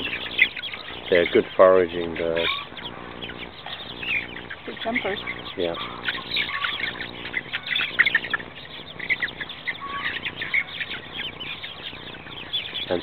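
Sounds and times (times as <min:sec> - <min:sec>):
young chickens peeping: 0:00.0 - 0:13.0.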